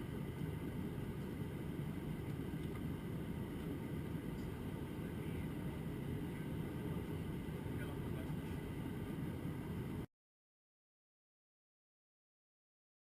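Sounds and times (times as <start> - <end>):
airplane cabin rumble in flight: 0.0 - 10.1.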